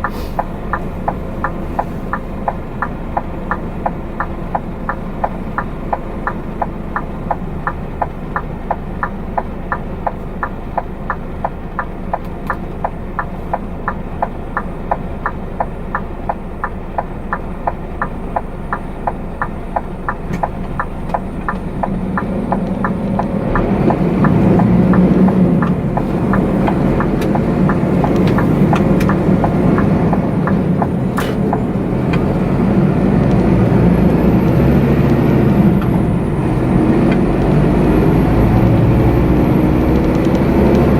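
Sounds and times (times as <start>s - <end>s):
diesel engine rumble: 0.0s - 40.9s
turn indicator relay ticking: 0.0s - 40.9s.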